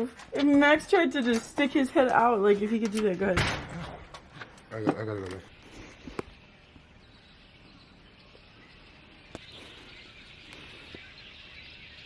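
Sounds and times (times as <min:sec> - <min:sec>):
small birds chirping: 0:04.0 - 0:12.0.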